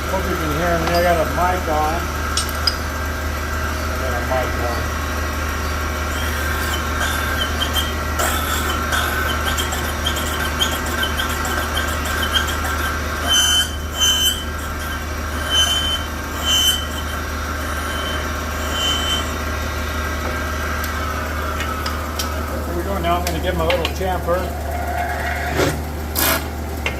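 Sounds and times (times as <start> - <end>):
machine humming and whining: 0.0 - 26.9
metal parts squeaking: 0.8 - 1.4, 5.6 - 19.5.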